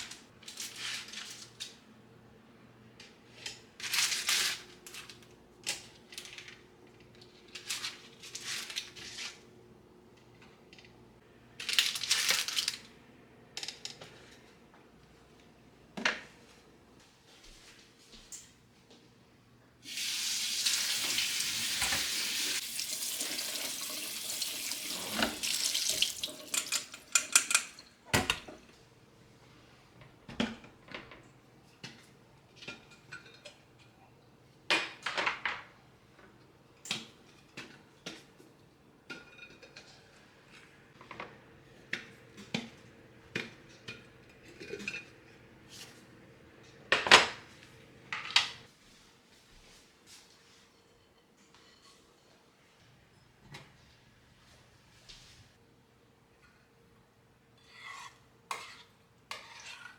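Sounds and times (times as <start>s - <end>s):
tap running into sink: 20.6s - 27.5s
dishes clattering: 24.9s - 28.6s
dishes and utensils clinking: 25.0s - 28.6s, 39.0s - 41.2s, 42.0s - 45.4s.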